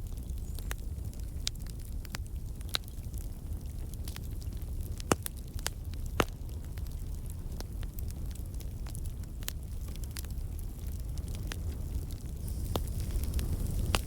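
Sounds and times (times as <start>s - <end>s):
loud fire pops: 0.0s - 14.0s
low rumble of flames: 0.0s - 14.0s
logs crackling: 0.2s - 14.0s.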